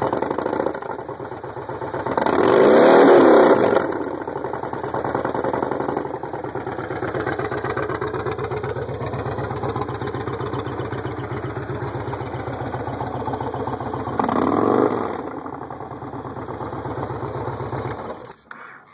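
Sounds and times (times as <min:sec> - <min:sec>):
motorcycle engine idling: 0:00.0 - 0:18.5.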